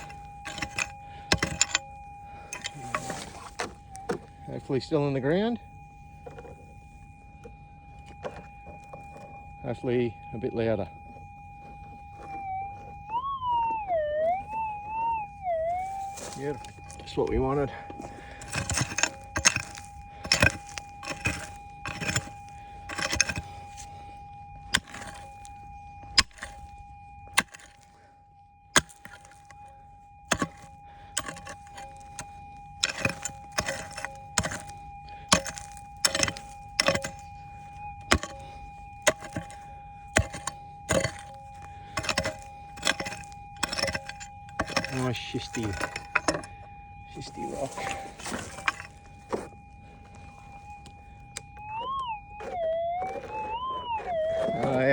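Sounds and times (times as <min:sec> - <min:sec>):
stones clinking: 0:00.0 - 0:01.9, 0:15.4 - 0:23.4, 0:30.3 - 0:37.2, 0:38.0 - 0:38.4, 0:39.0 - 0:46.6, 0:47.2 - 0:54.9
pick striking rocky ground: 0:00.0 - 0:04.4, 0:11.6 - 0:23.9, 0:24.5 - 0:27.9, 0:28.6 - 0:54.9
metal detector tone: 0:00.0 - 0:23.9, 0:30.2 - 0:54.9.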